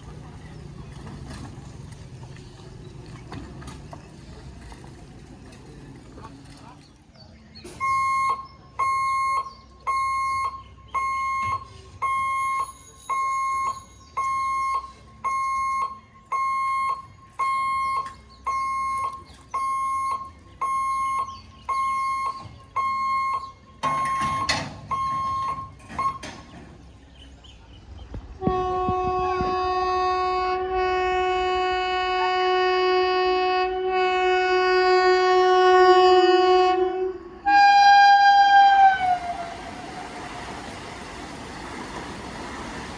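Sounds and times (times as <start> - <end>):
level crossing hooter beeping: 7.8 - 26.3
train horn blast: 28.4 - 40.0.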